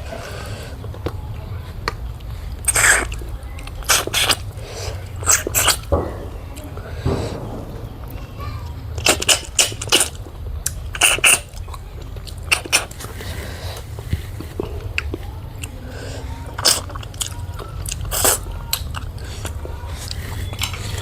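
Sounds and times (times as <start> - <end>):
person chewing food: 1.8 - 5.9, 9.0 - 21.0
low hum: 5.8 - 10.6.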